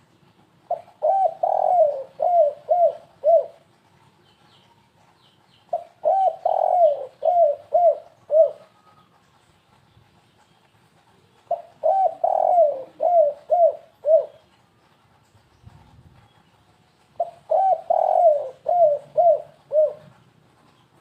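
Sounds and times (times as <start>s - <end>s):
dove cooing: 0.7s - 3.8s, 5.7s - 9.1s, 11.2s - 14.6s, 17.2s - 20.8s.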